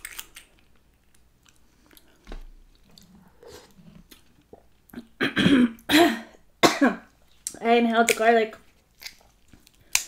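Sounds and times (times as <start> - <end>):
faint chewing: 0.0 - 5.2, 8.6 - 10.0.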